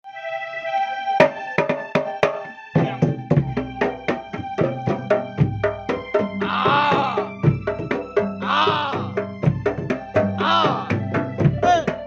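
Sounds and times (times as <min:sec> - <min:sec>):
sustained melody: 0:00.0 - 0:12.0
fast steady drum rhythm: 0:01.2 - 0:12.0
deep bass drum beats: 0:02.8 - 0:12.0.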